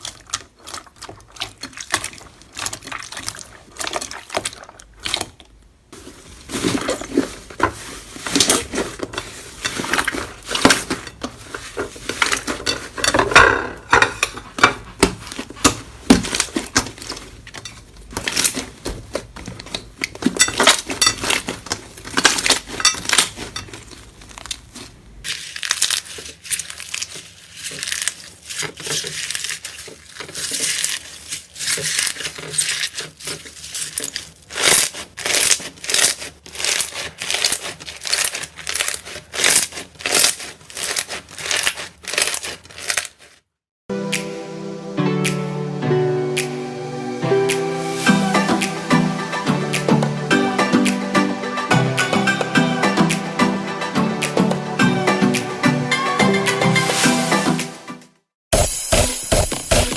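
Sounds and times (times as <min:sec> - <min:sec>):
slime crackling and popping: 0:00.0 - 0:05.6, 0:14.9 - 0:43.4.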